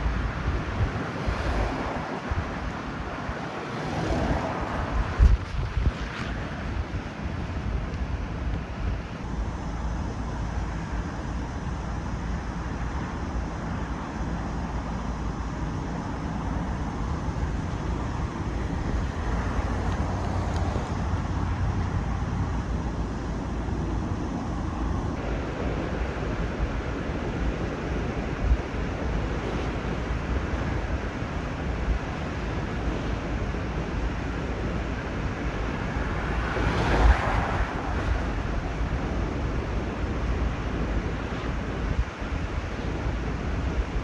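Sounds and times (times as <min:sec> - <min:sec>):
road traffic rushing: 0:00.0 - 0:44.0
wind rumbling on microphone: 0:00.0 - 0:44.0.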